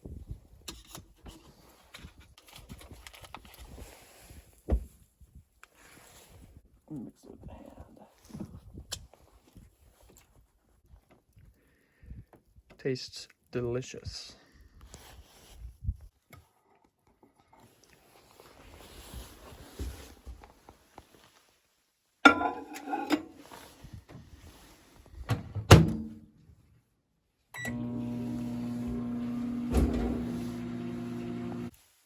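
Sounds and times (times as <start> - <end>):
dishes clattering: 22.3 - 23.4
microwave humming: 27.6 - 31.7
microwave door clacking shut: 29.6 - 30.3.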